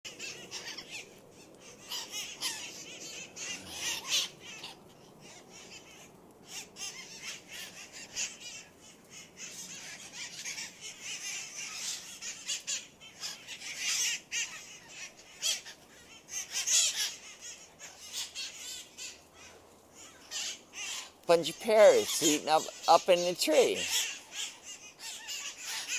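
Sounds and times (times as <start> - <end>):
parrots squawking and screeching: 0.1 - 25.9.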